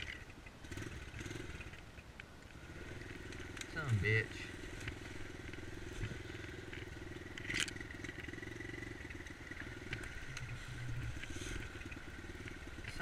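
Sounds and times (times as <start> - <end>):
dirt bike engine idling: 0.0 - 13.0
light ticks: 3.2 - 4.0, 9.0 - 13.0.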